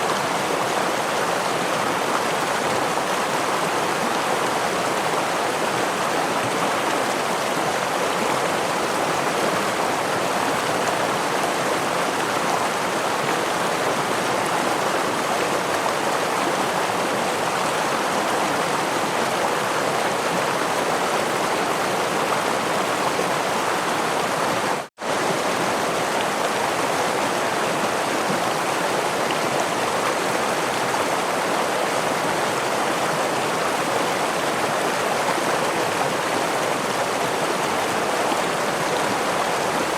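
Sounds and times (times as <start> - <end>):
rushing stream water: 0.0 - 39.9.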